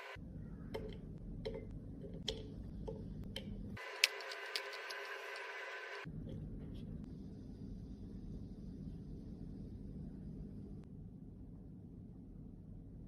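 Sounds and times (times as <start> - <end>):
steady low hum: 0.0 - 13.0
makeup containers clicking: 0.8 - 5.2.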